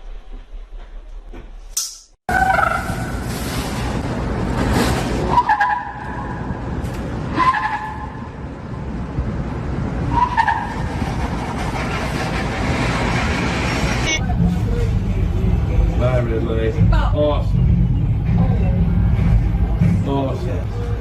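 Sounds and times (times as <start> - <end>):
heavy vehicle rushing noise: 6.2 - 21.0.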